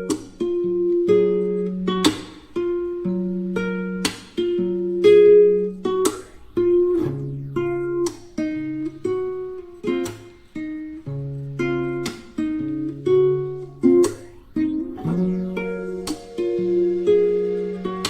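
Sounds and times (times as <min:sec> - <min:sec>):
strummed acoustic guitar: 0:00.0 - 0:18.0.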